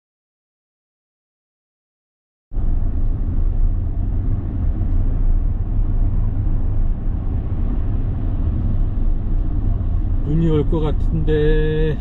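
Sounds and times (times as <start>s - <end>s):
car interior road rumble: 2.5s - 12.0s.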